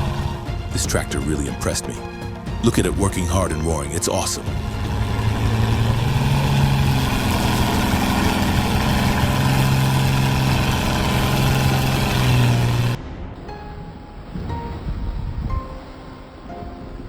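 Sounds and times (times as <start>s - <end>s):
tractor engine droning: 3.9s - 13.6s.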